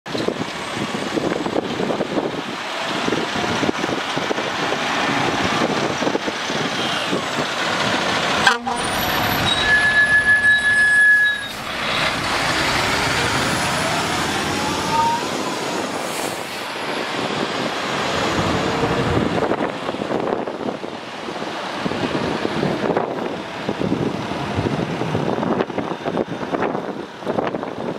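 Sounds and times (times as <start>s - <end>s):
fire truck engine and road noise: 0.0s - 27.9s
fire truck horn blast: 8.4s - 12.1s
siren winding up: 8.8s - 11.6s, 13.8s - 15.5s.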